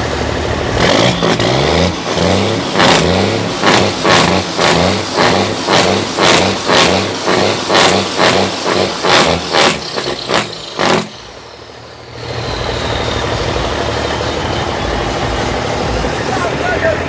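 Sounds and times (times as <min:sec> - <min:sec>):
loud rhythmic pulsing: 0:00.0 - 0:11.5
truck engine running: 0:00.0 - 0:17.0.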